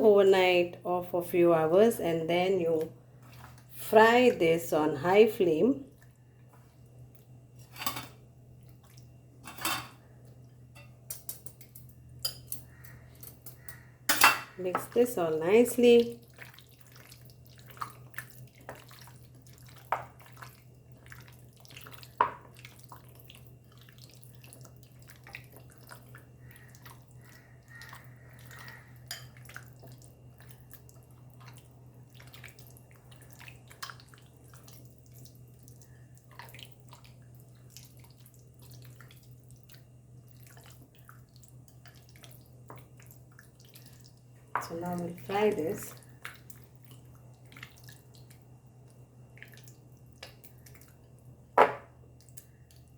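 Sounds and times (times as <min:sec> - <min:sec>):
wet squelching of marinade: 0:01.6 - 0:06.5, 0:14.6 - 0:51.3.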